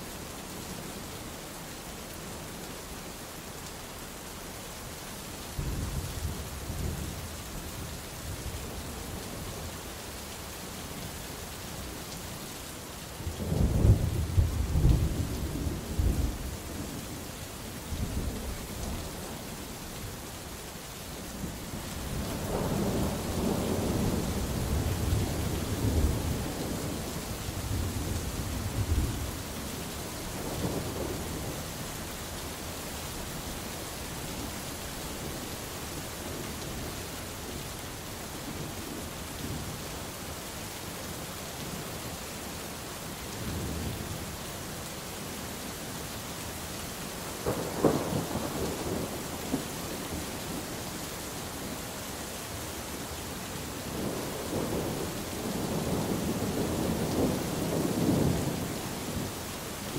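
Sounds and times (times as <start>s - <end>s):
steady rain falling: 0.0s - 59.9s
low thunder rumbles: 21.4s - 31.7s, 47.4s - 50.8s, 53.8s - 59.3s.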